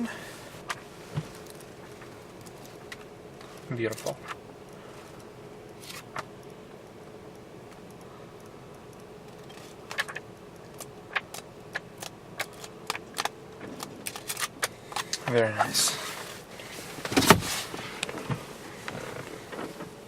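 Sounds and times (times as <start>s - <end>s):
faint steady hum: 0.0s - 20.0s
clicks and rattles of handling: 0.7s - 4.4s.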